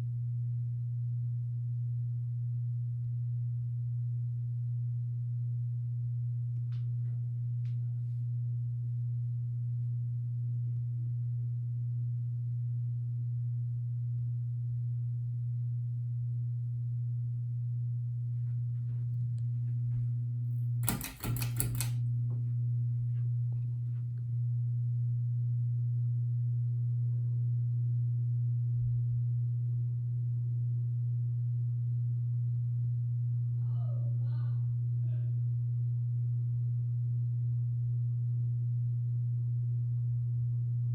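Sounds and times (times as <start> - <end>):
ceiling fan motor humming: 20.8 - 22.0.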